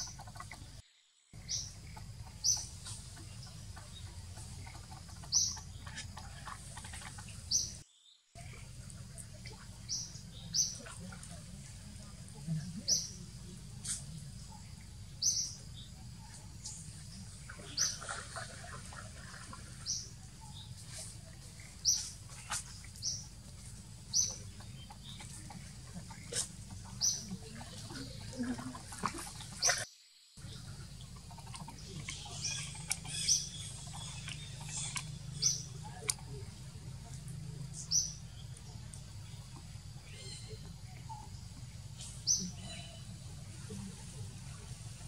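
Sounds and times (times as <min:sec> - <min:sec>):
small bird chirping: 0:00.0 - 0:00.8, 0:01.4 - 0:07.8, 0:08.4 - 0:11.4, 0:12.8 - 0:18.2, 0:19.8 - 0:28.2, 0:30.4 - 0:43.2
low steady hum: 0:08.4 - 0:29.8, 0:30.4 - 0:45.0.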